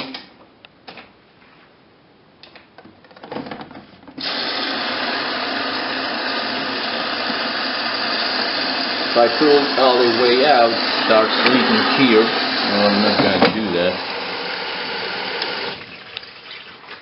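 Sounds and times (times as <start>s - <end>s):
water rushing into washing machine: 4.2s - 17.0s.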